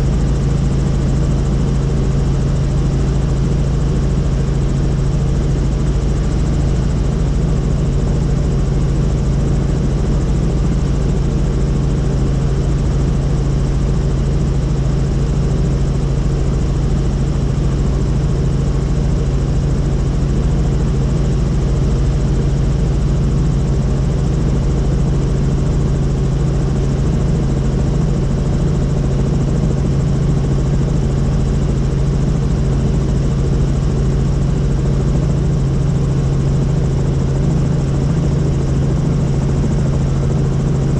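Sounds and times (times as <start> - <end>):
helicopter rotor and turbine drone: 0.0 - 40.9.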